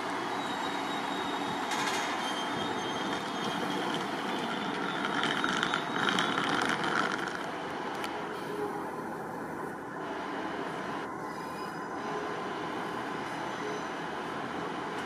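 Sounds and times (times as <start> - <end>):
diesel train running slowly: 0.0 - 15.0
high-pitched wheel squeal: 0.2 - 6.8, 13.3 - 14.0.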